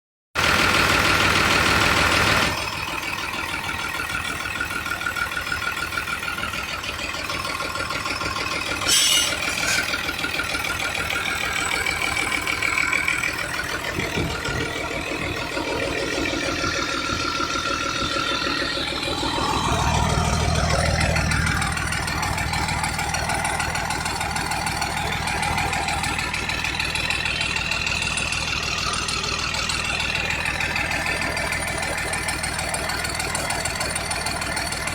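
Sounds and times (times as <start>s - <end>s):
vehicle engine idling: 0.4s - 34.9s
short hiss: 8.9s - 9.9s.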